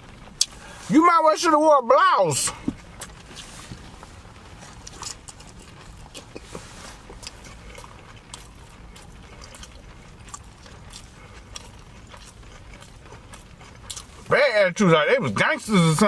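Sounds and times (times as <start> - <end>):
steady low hum: 0.0 - 16.0
person chewing with wet mouth clicks: 4.8 - 14.2.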